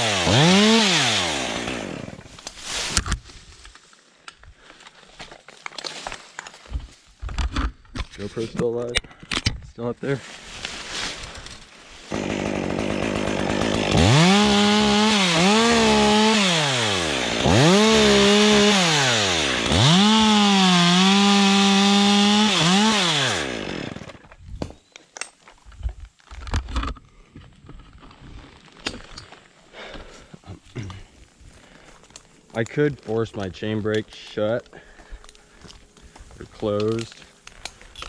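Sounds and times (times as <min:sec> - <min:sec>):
chainsaw cutting wood: 0:00.0 - 0:02.4, 0:12.1 - 0:24.2
rustling: 0:02.2 - 0:08.6, 0:09.8 - 0:12.2.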